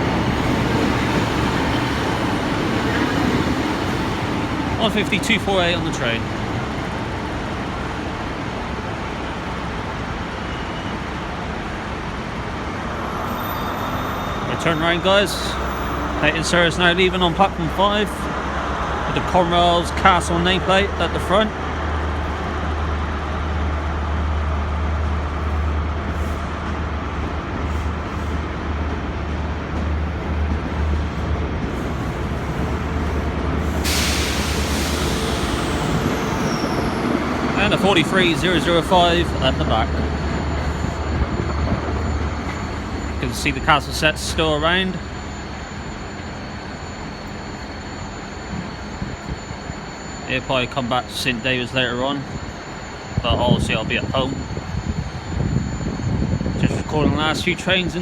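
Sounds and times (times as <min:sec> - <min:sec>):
diesel train engine rumbling: 0:00.0 - 0:58.0
loud air hiss: 0:33.6 - 0:37.8.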